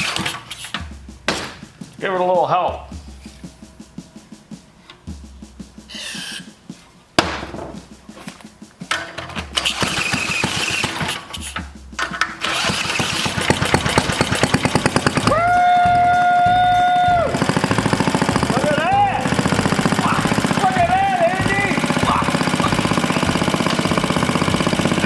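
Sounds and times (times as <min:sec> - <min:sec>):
small engine cranking and firing: 0:00.0 - 0:01.5, 0:08.9 - 0:15.5, 0:17.2 - 0:25.0.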